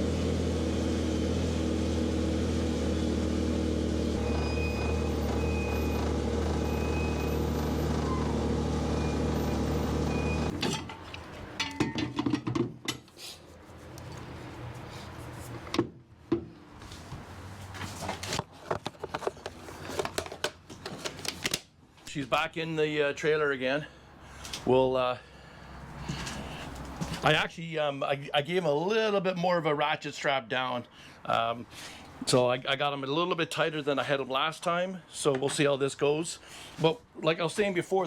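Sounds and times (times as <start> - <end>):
car engine running: 0.0 - 10.6.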